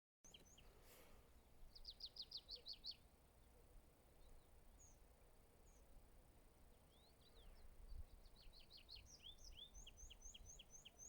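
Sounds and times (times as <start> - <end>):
small bird singing: 0.3 - 0.8, 1.7 - 3.6, 6.7 - 11.0.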